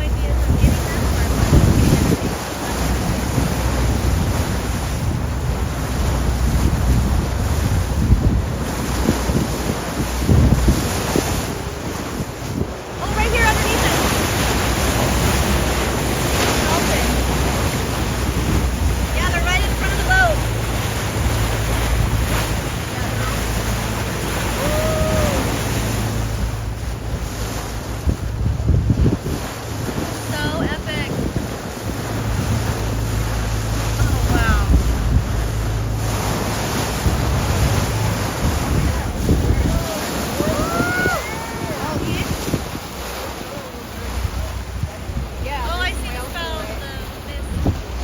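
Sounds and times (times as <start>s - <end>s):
boat rumble: 0.0s - 48.0s
sea water rushing: 0.0s - 48.0s
wind buffeting the microphone: 0.0s - 48.0s.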